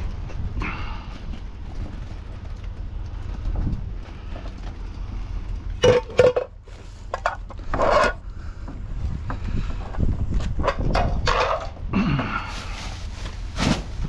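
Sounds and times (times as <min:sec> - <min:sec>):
wind rumble on microphone: 0:00.0 - 0:05.8, 0:07.2 - 0:14.0
metal scrap clanking: 0:05.8 - 0:08.2.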